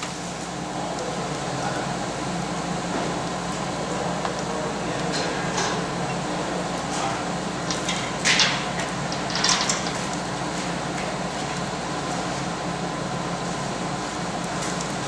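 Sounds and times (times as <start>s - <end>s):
steady hum: 10.0s - 15.0s.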